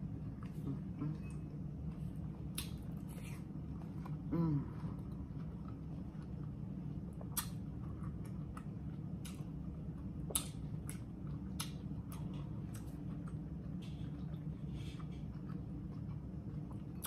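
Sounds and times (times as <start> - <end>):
steady low hum: 0.0 - 17.0
wet mouth clicks and smacks: 2.5 - 2.9, 7.2 - 7.6.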